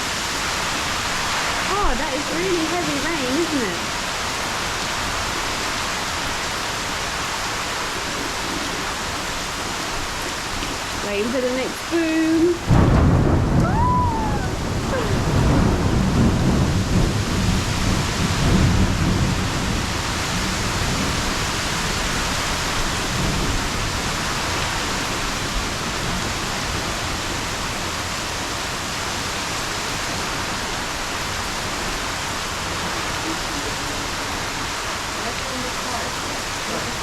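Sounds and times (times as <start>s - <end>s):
heavy rain pouring: 0.0s - 37.0s
low rumble of thunder: 12.6s - 37.0s.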